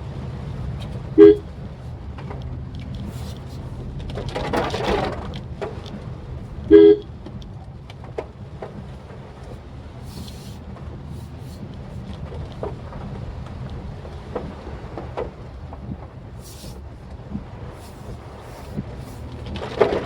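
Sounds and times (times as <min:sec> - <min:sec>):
car engine and road rumble: 0:00.0 - 0:20.0
rain ticking on car: 0:00.0 - 0:20.0
car horn beep: 0:01.1 - 0:01.5, 0:06.7 - 0:07.2.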